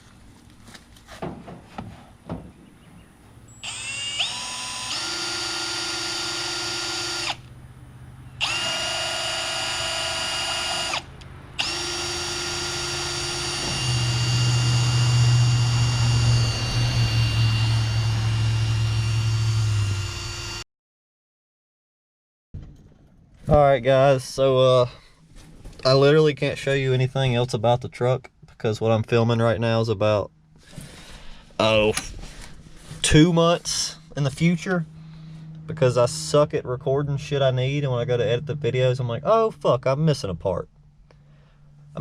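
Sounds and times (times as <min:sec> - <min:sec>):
deeper hum: 0:02.1 - 0:20.6, 0:29.0 - 0:42.0
pump motor whining: 0:03.5 - 0:07.6, 0:08.4 - 0:20.6.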